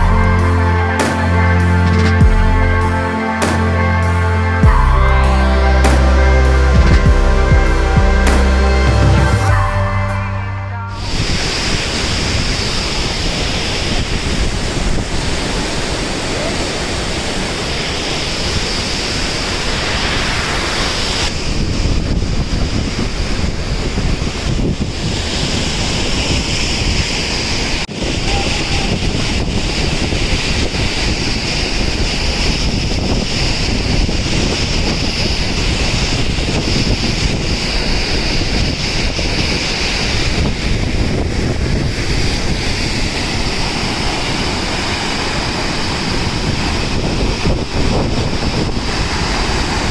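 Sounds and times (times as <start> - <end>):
waterfall rushing: 0.0 - 21.6, 25.4 - 49.9.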